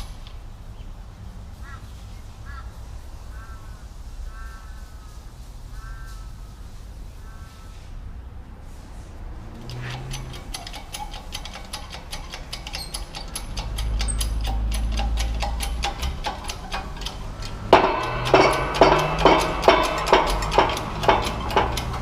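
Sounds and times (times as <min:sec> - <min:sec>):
rapid even ticking: 0:09.5 - 0:22.0
ringing metallic knocks: 0:09.5 - 0:22.0.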